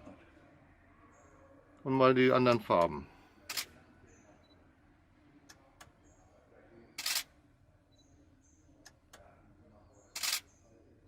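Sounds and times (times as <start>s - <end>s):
faint clicks: 5.4s - 6.0s
camera shutter releasing: 7.0s - 7.3s, 10.2s - 10.4s.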